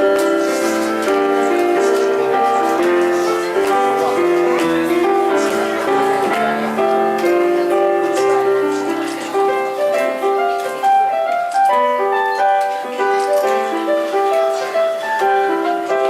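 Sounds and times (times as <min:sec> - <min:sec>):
voices singing: 0:00.4 - 0:10.2.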